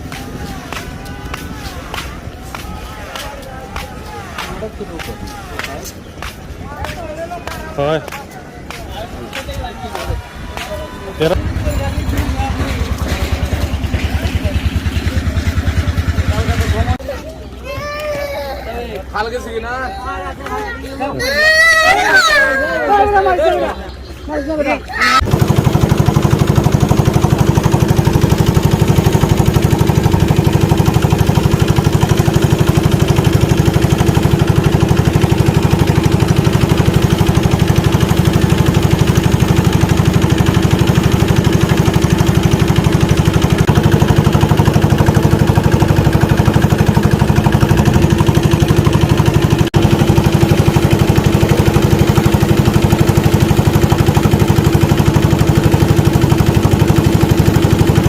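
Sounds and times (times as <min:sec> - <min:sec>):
motor boat engine chugging: 0:08.6 - 0:17.5, 0:25.0 - 0:58.0.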